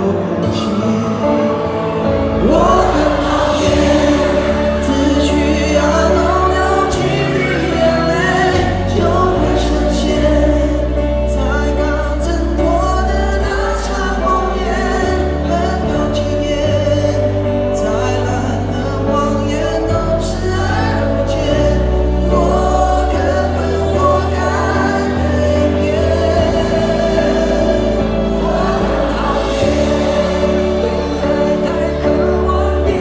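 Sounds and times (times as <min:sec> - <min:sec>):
bass line: 0:00.0 - 0:33.0
person singing: 0:00.0 - 0:33.0
live band music: 0:21.8 - 0:33.0.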